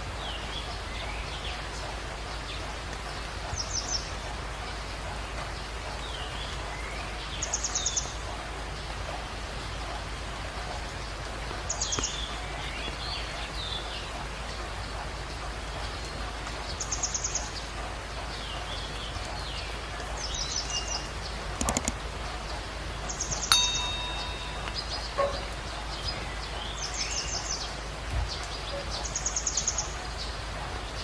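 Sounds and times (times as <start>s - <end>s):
songbirds trilling: 18.3s - 31.0s
sharp clicks: 21.6s - 22.0s.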